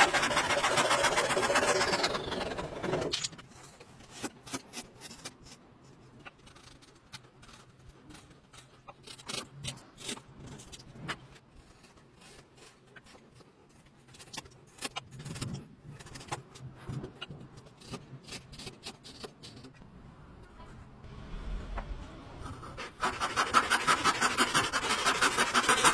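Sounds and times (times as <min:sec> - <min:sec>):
low steady hum: 0:19.8 - 0:23.0.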